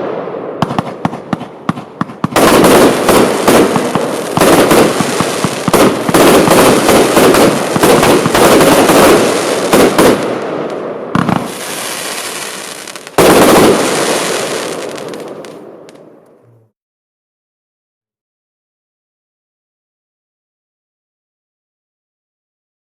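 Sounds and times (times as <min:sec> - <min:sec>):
firework cake firing sharp reports: 0:00.0 - 0:16.0.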